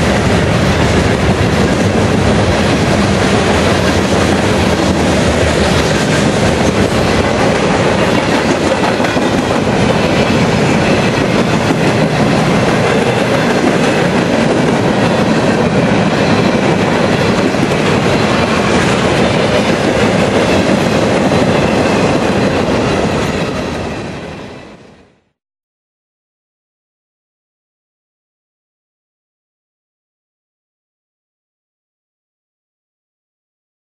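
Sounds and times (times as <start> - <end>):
steel wheels rolling on rails: 0.0 - 24.7.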